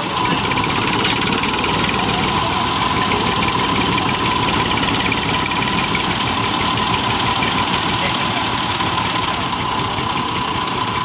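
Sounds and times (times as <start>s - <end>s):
tractor engine rumbling: 0.0s - 11.0s.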